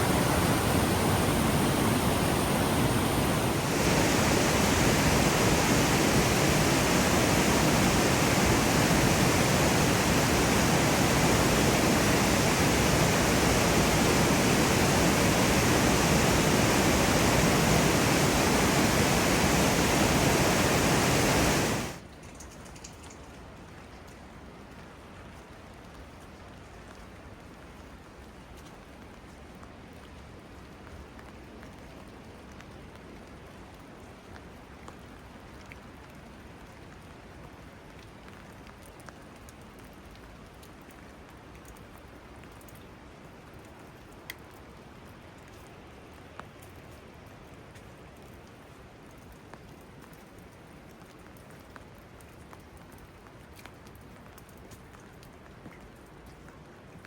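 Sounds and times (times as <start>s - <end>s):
mountain water rushing: 0.0s - 22.0s
rain pattering: 0.0s - 57.0s.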